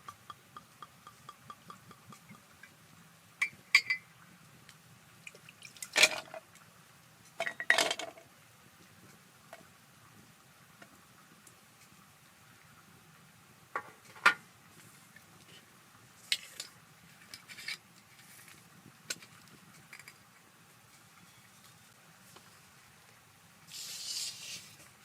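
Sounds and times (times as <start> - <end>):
dishes and glassware clinking: 3.4 - 4.0, 7.4 - 8.2.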